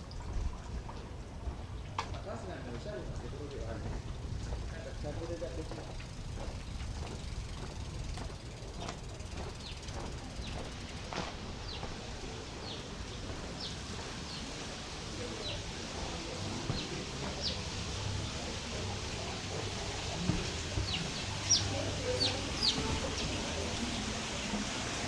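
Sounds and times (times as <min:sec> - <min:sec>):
low background hum: 0:00.0 - 0:25.0
small bird chirping: 0:05.7 - 0:11.0, 0:20.7 - 0:23.5.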